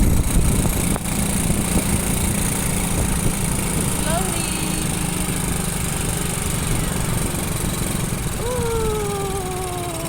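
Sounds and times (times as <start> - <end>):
motorcycle engine running: 0.0 - 10.0
road and wind noise: 0.0 - 10.0
drawn-out falling tone: 8.3 - 10.0.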